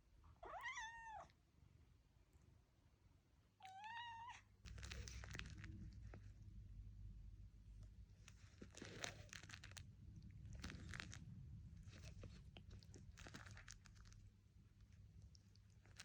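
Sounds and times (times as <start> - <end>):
low steady hum: 0.0 - 16.0
faint crunching and crackling: 4.6 - 16.0.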